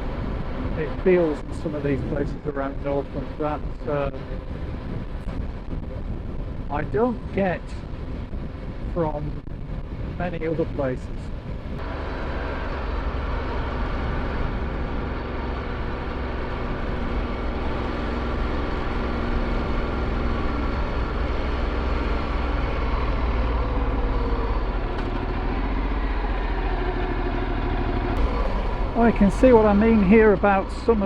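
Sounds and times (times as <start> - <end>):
road and wind noise: 0.0 - 31.0
motorcycle engine cruising: 11.1 - 31.0.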